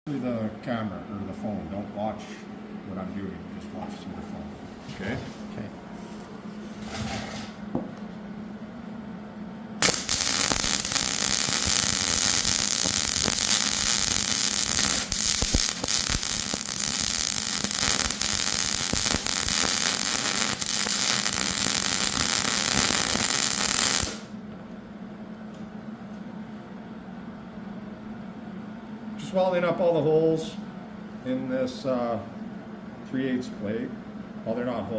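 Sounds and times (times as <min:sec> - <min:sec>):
arc welding crackling sizzle: 0:09.8 - 0:24.3.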